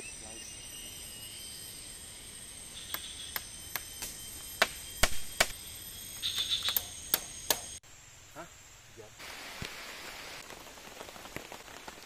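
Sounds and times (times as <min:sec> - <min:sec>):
high-pitched hum: 0:00.0 - 0:07.8.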